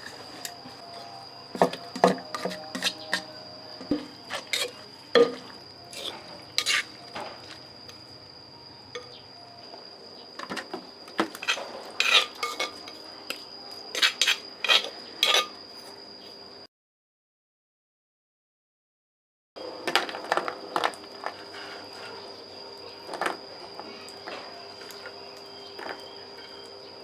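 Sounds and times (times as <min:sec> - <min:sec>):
utensils clinking against dishes: 0:00.0 - 0:08.0, 0:10.4 - 0:15.6
steady high-pitched tone: 0:00.0 - 0:10.0.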